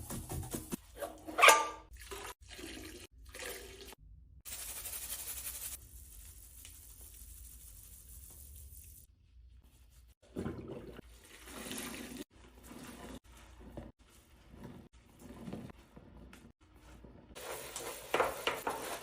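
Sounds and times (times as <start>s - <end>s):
water running: 1.0s - 9.1s, 10.2s - 14.0s.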